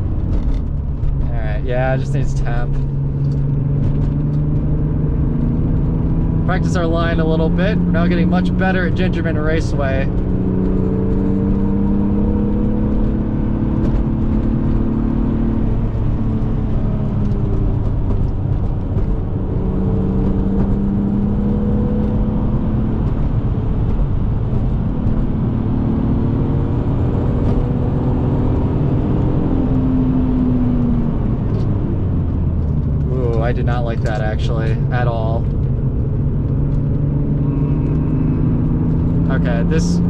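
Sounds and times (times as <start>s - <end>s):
car engine accelerating: 0.0s - 40.0s
road and tyre rumble: 0.0s - 40.0s.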